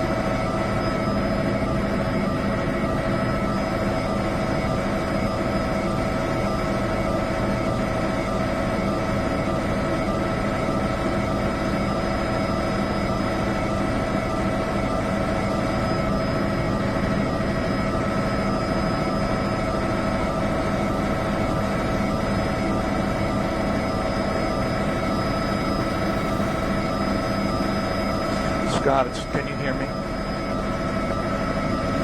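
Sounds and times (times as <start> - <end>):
machine engine drone: 0.0 - 32.0.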